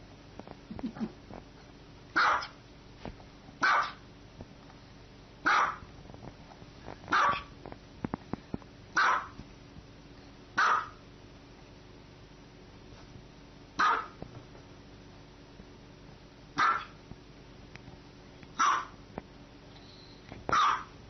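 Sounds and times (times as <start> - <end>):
dog barking: 2.2 - 2.6, 3.6 - 4.0, 5.4 - 5.8, 7.1 - 7.5, 9.0 - 9.4, 10.6 - 11.0, 13.8 - 14.2, 16.6 - 17.0, 18.6 - 19.0, 20.5 - 20.9.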